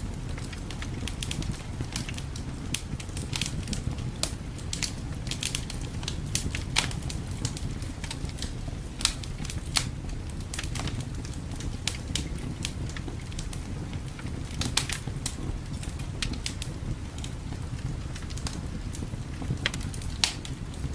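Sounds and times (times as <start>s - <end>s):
fire crackling and popping: 0.0s - 20.9s.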